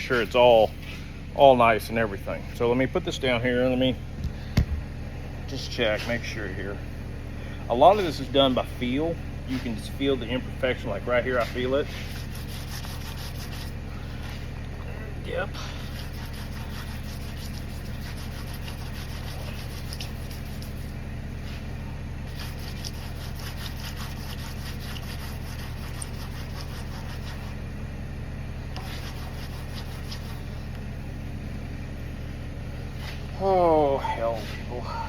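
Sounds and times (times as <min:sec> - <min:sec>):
steady low hum: 0:00.0 - 0:35.0
sandpaper rubbing on metal: 0:11.1 - 0:14.5, 0:15.5 - 0:21.6, 0:22.2 - 0:27.6, 0:28.8 - 0:30.6.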